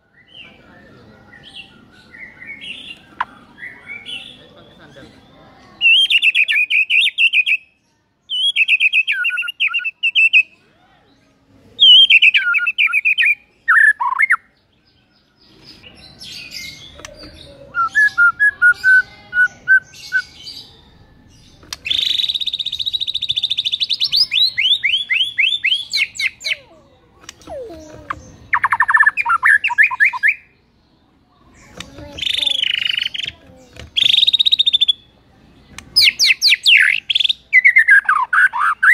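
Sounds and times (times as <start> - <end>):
bird singing trills: 0.0 - 10.6, 11.8 - 38.9.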